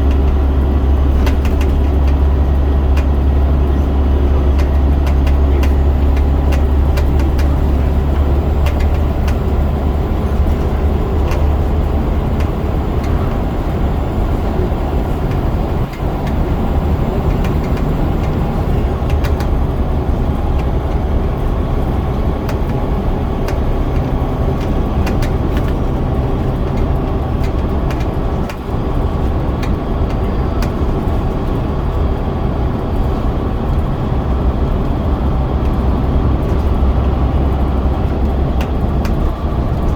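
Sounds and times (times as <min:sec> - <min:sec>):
light rattling clicks: 0:00.0 - 0:31.6
bus diesel engine drone: 0:00.0 - 0:39.9.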